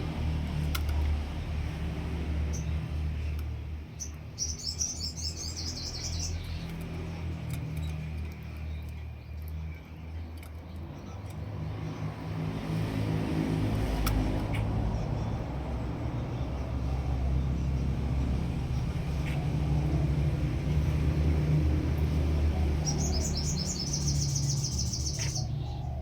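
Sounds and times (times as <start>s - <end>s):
low engine hum: 0.0s - 26.0s.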